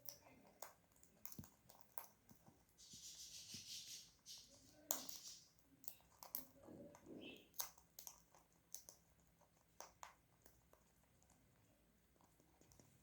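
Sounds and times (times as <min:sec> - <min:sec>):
parakeet eating crunches: 0:00.0 - 0:13.0
soft hissing rustle: 0:02.6 - 0:06.0.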